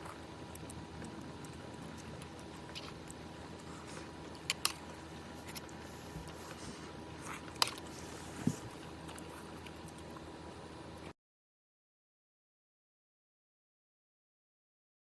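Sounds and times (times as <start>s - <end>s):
soft chewing: 0.0s - 11.1s.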